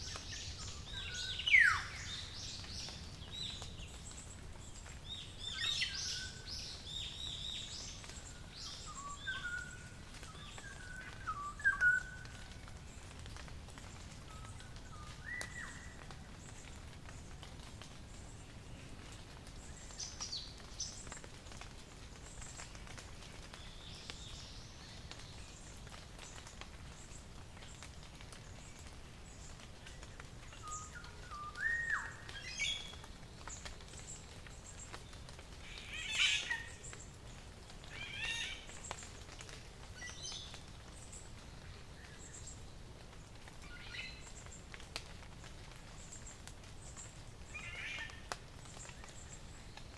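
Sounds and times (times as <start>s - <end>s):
birds chirping and twittering: 0.0s - 12.4s, 30.4s - 37.2s.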